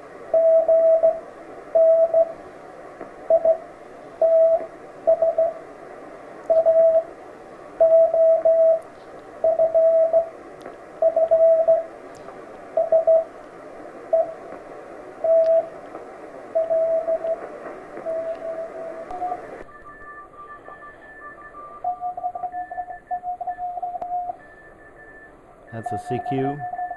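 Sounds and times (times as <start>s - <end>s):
morse code beeps: 0.4s - 1.2s, 1.8s - 2.3s, 3.3s - 5.6s, 6.5s - 7.1s, 7.8s - 8.8s, 9.4s - 10.3s, 11.0s - 11.9s, 12.8s - 13.3s, 15.2s - 15.7s, 16.6s - 26.9s
radio receiver hiss: 8.4s - 21.1s.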